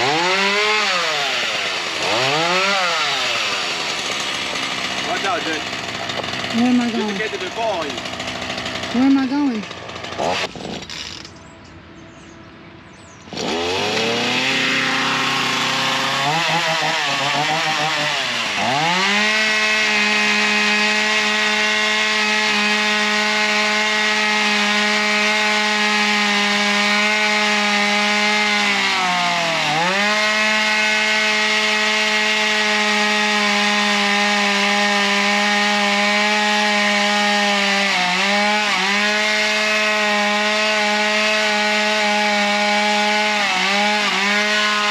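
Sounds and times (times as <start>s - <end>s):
chainsaw cutting wood: 0.0s - 11.4s, 13.3s - 44.9s.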